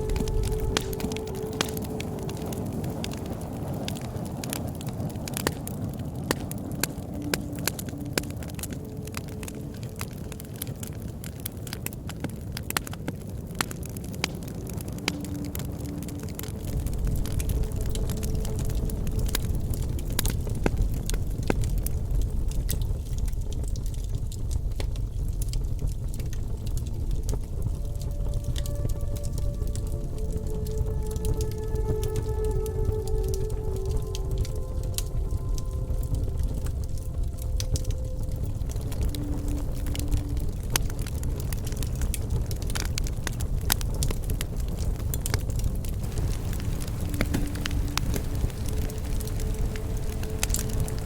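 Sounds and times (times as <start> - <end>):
wood fire crackling and popping: 0.0 - 51.0.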